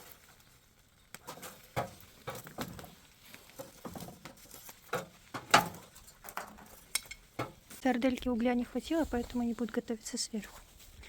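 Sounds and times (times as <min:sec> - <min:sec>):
food knocking on coals: 0:00.0 - 0:08.4.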